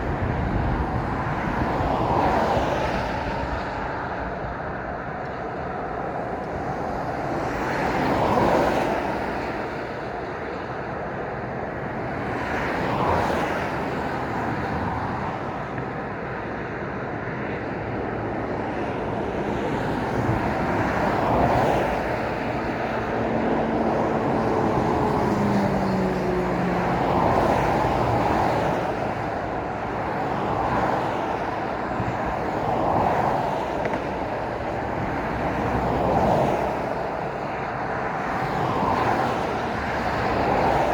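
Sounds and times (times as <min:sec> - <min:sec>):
road traffic passing: 0:00.0 - 0:40.9.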